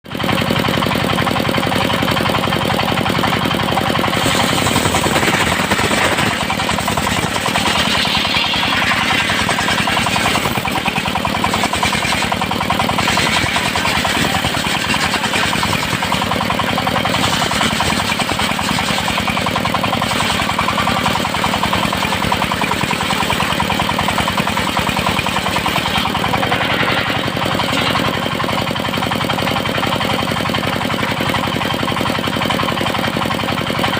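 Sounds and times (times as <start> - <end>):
knocking engine: 0.0 - 33.9
circular saw cutting wood: 2.2 - 29.2.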